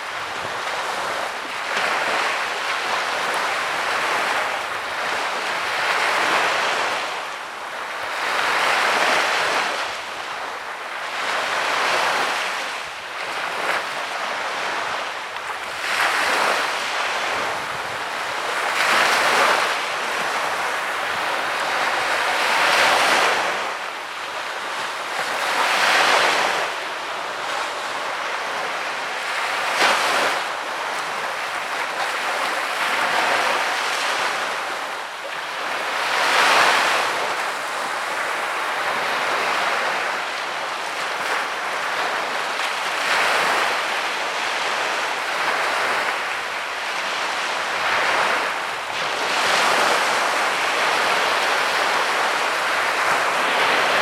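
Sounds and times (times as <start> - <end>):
sea waves breaking on beach: 0.0 - 54.0.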